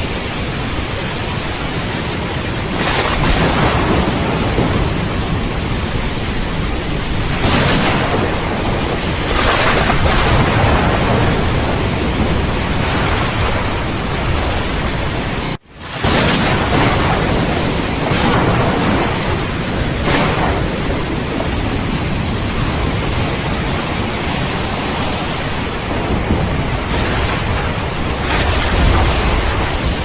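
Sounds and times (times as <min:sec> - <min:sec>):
steady rain: 0:00.0 - 0:30.0
thunder rumbling: 0:00.0 - 0:30.0.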